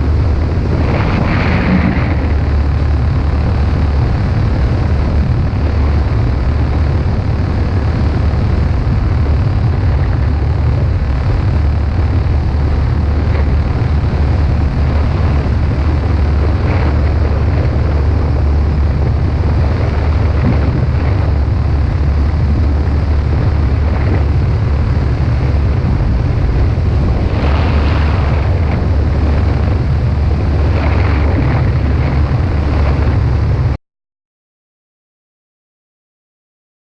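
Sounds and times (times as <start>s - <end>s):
wind buffeting microphone: 0.0s - 33.8s.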